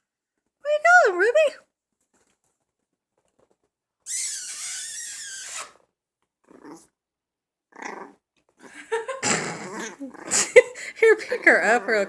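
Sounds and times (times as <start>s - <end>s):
dog growling: 6.4s - 7.0s, 7.7s - 10.6s, 11.2s - 12.0s.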